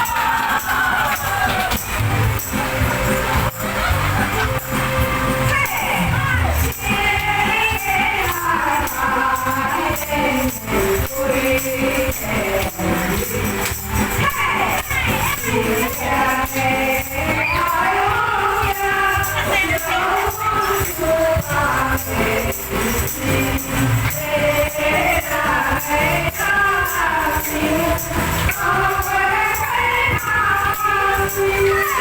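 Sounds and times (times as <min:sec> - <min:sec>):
song with singing over a beat: 0:00.0 - 0:32.0
tambourine jingles: 0:00.0 - 0:32.0.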